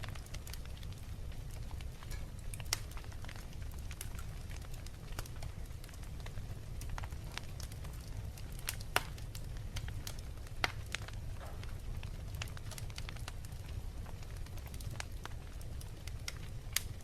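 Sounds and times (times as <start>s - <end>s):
sharp pops of fire: 0.0s - 17.0s
wood fire crackling: 0.0s - 17.0s.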